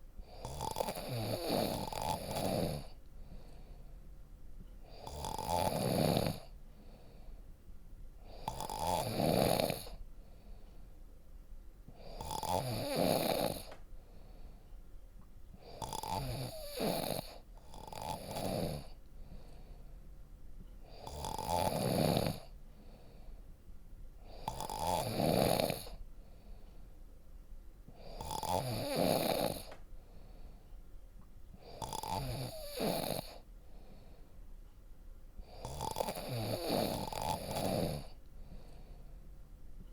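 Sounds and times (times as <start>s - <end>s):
person snoring deeply: 0.3s - 3.0s, 4.9s - 6.5s, 8.3s - 10.0s, 12.0s - 13.7s, 15.6s - 19.0s, 21.0s - 22.5s, 24.3s - 26.0s, 28.0s - 29.7s, 31.6s - 33.4s, 35.5s - 38.2s.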